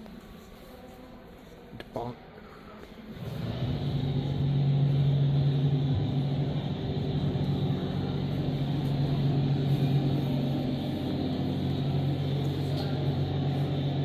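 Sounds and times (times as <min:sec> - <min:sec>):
motor humming steadily: 0:03.1 - 0:14.0.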